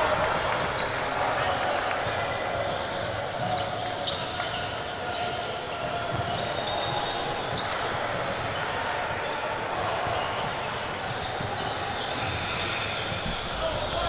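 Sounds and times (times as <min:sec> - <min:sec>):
echoing voices: 0:00.0 - 0:03.3, 0:08.8 - 0:14.0.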